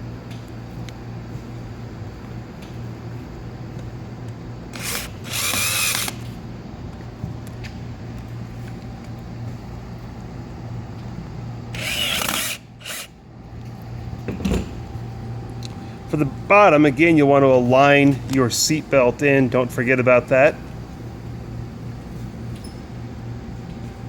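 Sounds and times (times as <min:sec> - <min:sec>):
steady low hum: 0:00.0 - 0:24.0
power drill driving screws: 0:04.7 - 0:06.3, 0:11.8 - 0:13.1.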